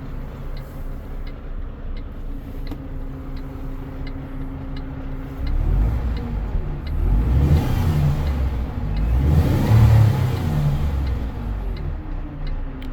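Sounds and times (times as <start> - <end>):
diesel truck engine revving: 3.6 - 12.9.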